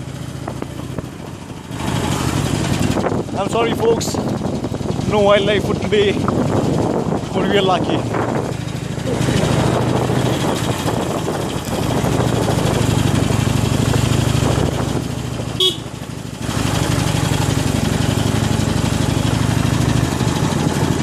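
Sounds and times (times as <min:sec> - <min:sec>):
motorcycle engine running: 0:00.0 - 0:21.0
horn toot: 0:15.6 - 0:15.9.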